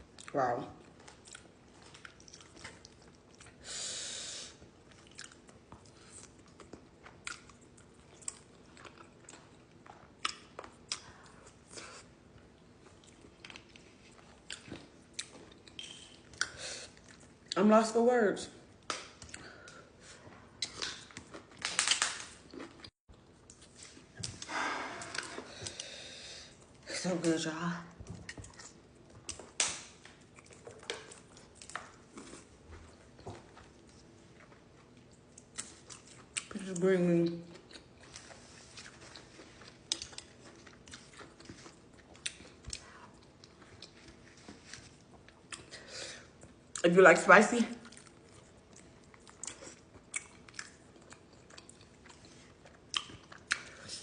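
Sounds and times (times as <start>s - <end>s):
chewing and biting food: 0.1s - 3.6s, 4.8s - 17.6s, 28.1s - 36.6s, 37.2s - 45.8s, 47.8s - 54.0s.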